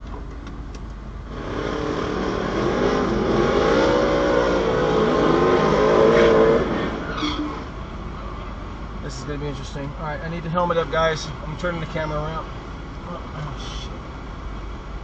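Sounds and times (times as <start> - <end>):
racing car engine at full throttle: 0.2 - 8.4.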